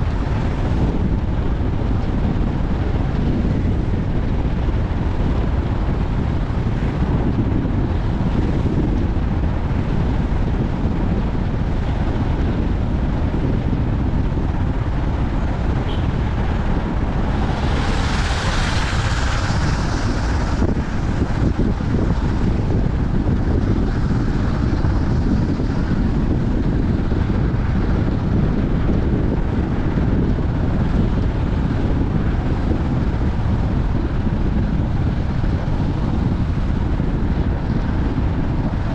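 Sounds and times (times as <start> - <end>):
car rumbling: 0.0 - 38.9
wind buffeting microphone: 0.0 - 38.9.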